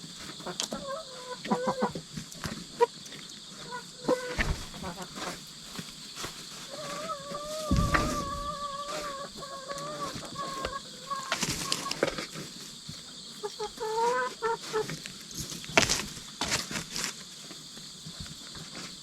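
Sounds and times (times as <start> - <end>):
hens calling and clucking: 0.0 - 19.0
dull thump: 4.4 - 4.8, 7.6 - 8.6.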